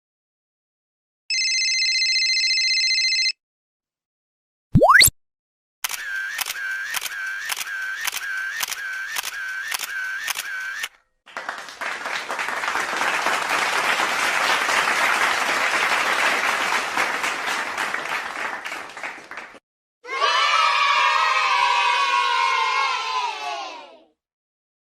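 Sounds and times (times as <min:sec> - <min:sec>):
applause: 0:11.2 - 0:19.6.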